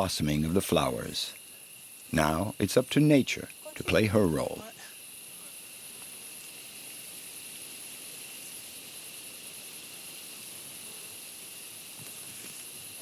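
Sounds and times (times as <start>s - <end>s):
night insects chorus: 0.0s - 13.0s.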